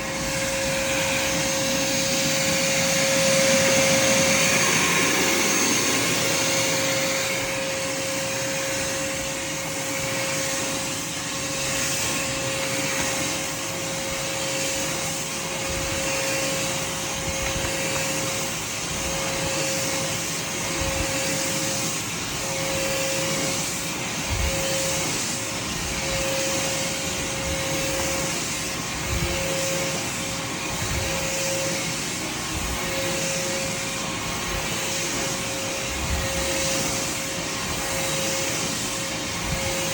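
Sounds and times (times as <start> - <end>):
shop vac whining: 0.0 - 39.9.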